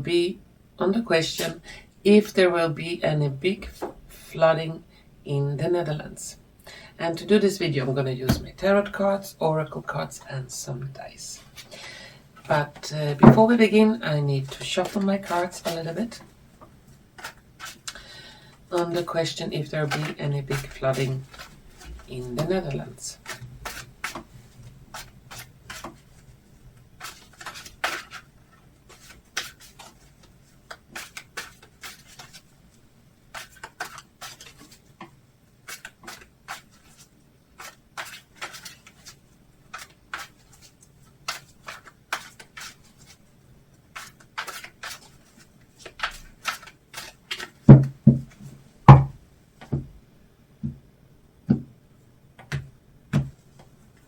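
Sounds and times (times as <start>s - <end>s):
cards being shuffled: 17.2s - 18.0s, 19.8s - 32.5s, 33.3s - 43.2s, 43.8s - 48.5s.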